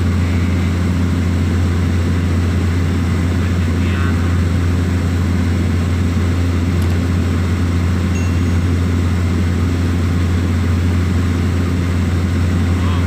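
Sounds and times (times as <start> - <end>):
propeller aircraft engine droning: 0.0 - 13.0.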